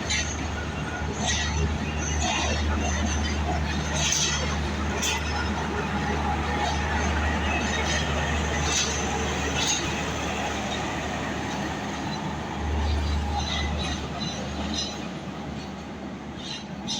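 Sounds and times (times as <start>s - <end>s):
train rumbling on tracks: 0.0s - 16.9s.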